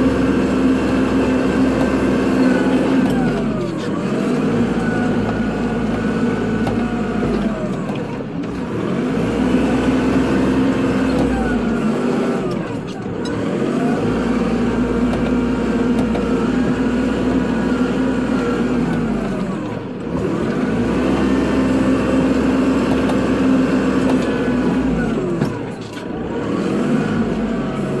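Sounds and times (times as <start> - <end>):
tractor diesel engine under load: 0.0 - 28.0.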